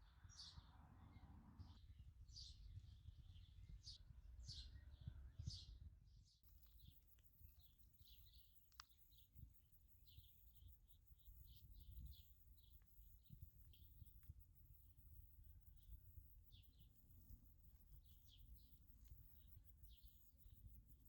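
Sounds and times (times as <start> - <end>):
faint birds chirping: 0.0 - 21.0.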